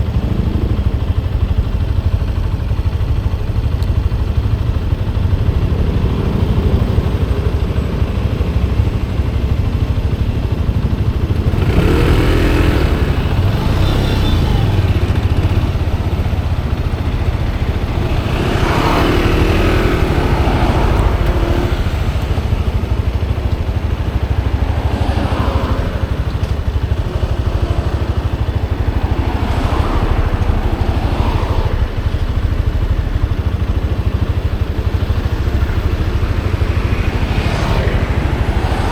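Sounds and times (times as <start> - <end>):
motorcycle engine rumble: 0.0 - 38.9.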